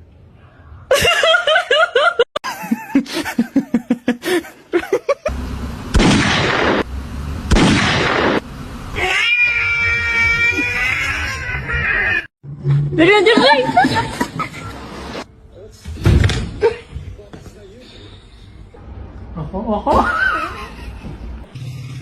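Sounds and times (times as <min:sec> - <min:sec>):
loud bursts of noise: 0:05.3 - 0:09.0
cat meowing and yowling: 0:09.0 - 0:12.3.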